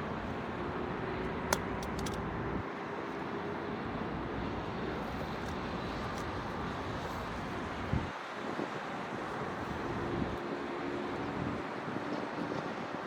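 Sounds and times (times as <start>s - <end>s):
city traffic rumble: 0.0s - 13.0s
faint engine hum: 0.0s - 13.0s
sharp click: 1.5s - 2.2s.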